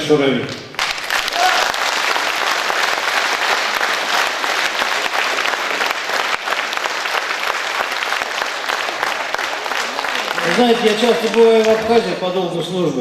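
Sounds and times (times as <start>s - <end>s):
audience applauding: 0.8s - 12.3s.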